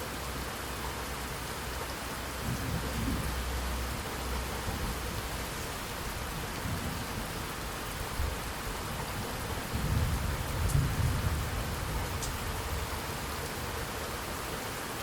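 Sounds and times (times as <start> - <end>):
heavy rain falling: 0.0 - 15.0
distant thunder rumbling: 9.7 - 12.9
sharp drip ticks: 12.2 - 12.6.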